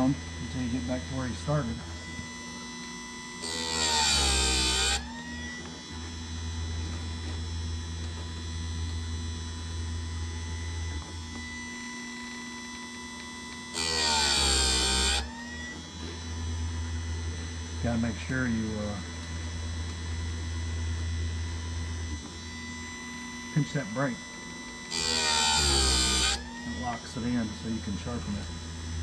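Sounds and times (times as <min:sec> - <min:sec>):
sharpener motor humming: 0:00.0 - 0:29.0
grinding wheel on chain tooth: 0:03.4 - 0:05.1, 0:13.7 - 0:15.3, 0:24.9 - 0:28.4.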